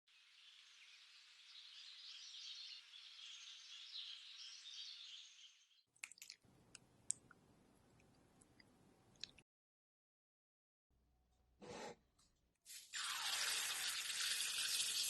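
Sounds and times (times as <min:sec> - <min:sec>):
faint chirping birdsong: 0:00.1 - 0:05.9.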